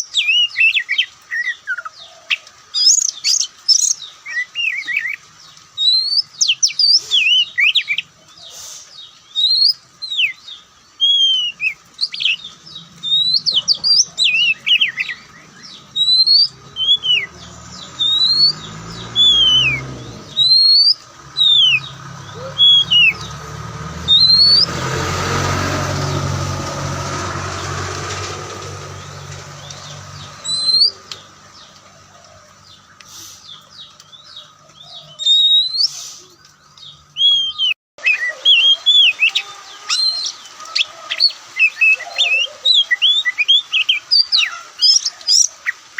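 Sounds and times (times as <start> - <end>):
bird singing whistled phrases: 5.8 - 8.1, 9.3 - 23.3, 24.1 - 24.7, 30.3 - 31.2, 35.0 - 36.3, 37.2 - 45.8
loud even rushing noise: 21.4 - 31.0.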